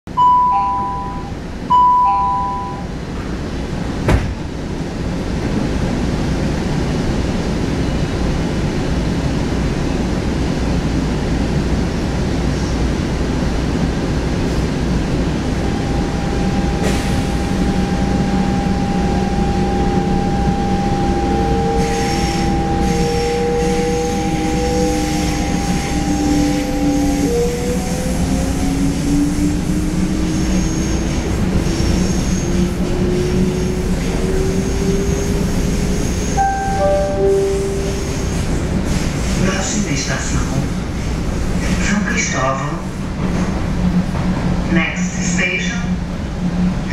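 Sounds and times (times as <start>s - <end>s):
electric train rumbling: 0.1s - 46.9s
whining tones gliding in pitch: 15.7s - 27.2s.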